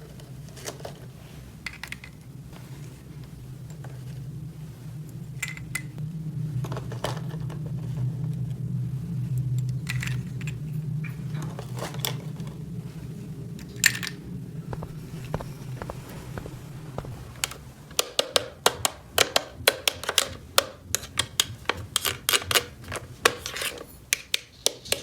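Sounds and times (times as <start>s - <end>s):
low hum: 0.0s - 21.0s
plastic toy pieces clicking: 18.0s - 25.0s.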